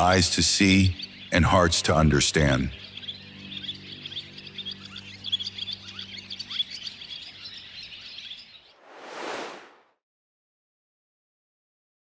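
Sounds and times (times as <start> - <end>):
small birds chirping: 0.0 - 8.8
whooshing swell: 8.8 - 9.8.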